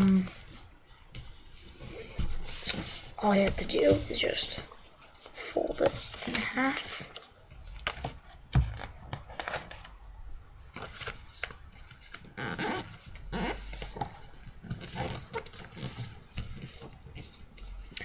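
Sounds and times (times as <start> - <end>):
paper rustling and scraping: 0.0 - 9.9, 10.7 - 18.0.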